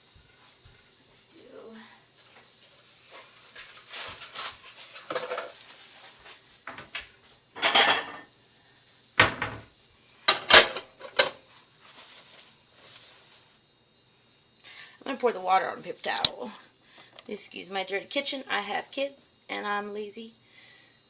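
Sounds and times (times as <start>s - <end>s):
dishes and glassware clattering: 7.6s - 8.2s.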